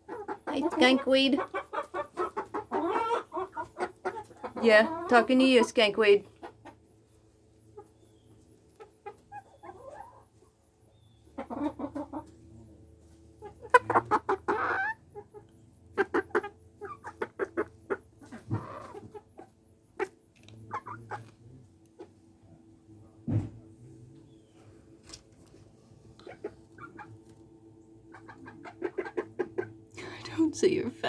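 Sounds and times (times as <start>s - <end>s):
chickens clucking: 0.0s - 30.8s
chicken long call: 13.4s - 15.0s.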